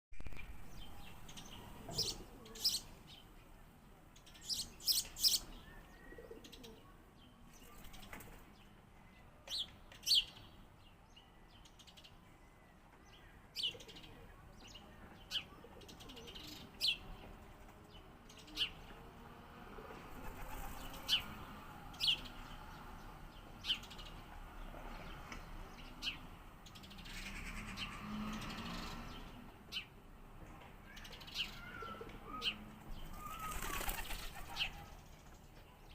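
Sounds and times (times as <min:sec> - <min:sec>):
sparrow chirping: 0:00.3 - 0:03.3, 0:04.1 - 0:06.9, 0:20.7 - 0:24.3, 0:30.9 - 0:35.9.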